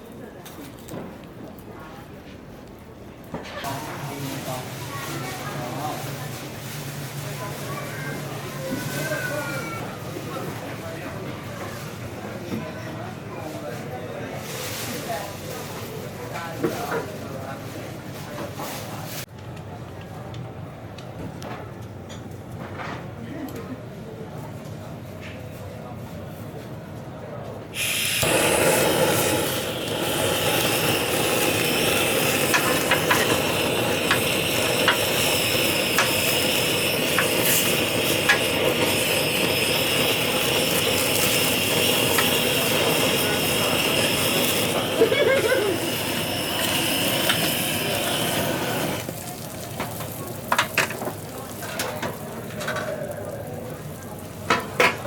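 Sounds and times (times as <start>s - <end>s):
food sizzling on a grill: 27.8s - 55.0s.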